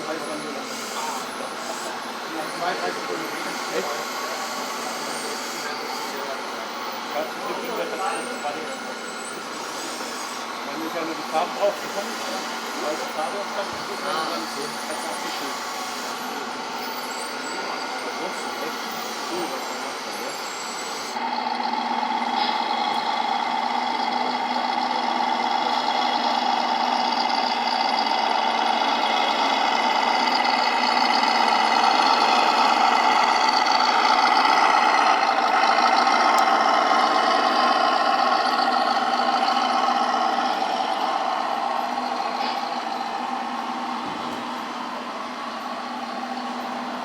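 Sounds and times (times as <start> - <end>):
model vehicle motor whine: 7.3 - 43.4.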